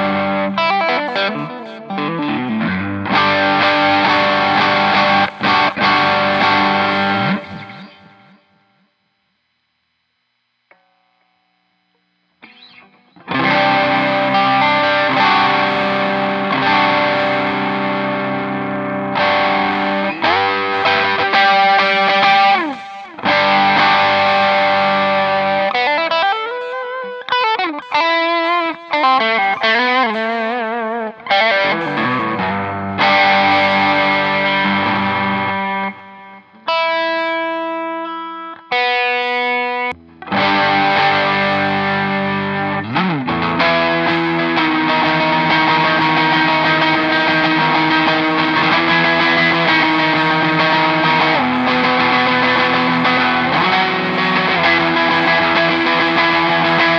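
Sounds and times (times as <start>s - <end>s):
distorted electric guitar: 0.0s - 56.9s.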